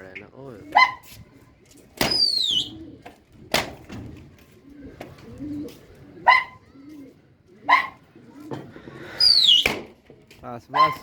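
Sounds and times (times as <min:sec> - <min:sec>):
pigeons cooing: 0:00.0 - 0:09.8, 0:10.7 - 0:11.0
dog yelping: 0:00.7 - 0:01.1, 0:06.2 - 0:06.7, 0:07.6 - 0:08.0, 0:10.7 - 0:11.0
sharp falling whistle: 0:09.2 - 0:09.7.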